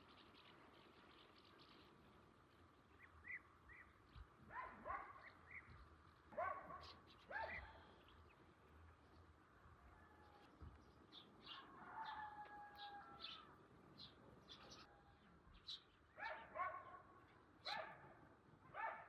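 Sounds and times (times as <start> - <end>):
small birds chirping: 0.0 - 9.4, 10.2 - 18.2
dog barking: 4.5 - 5.3, 6.3 - 7.8, 16.2 - 19.0.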